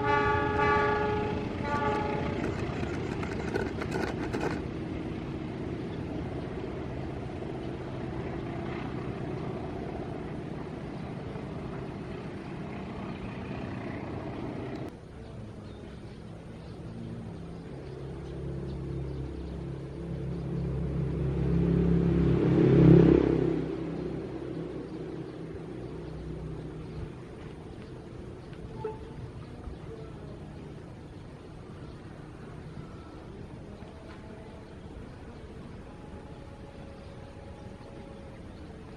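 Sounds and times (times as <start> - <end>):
train wagons rumbling and rattling: 0.0 - 15.0
low engine hum: 0.0 - 38.9.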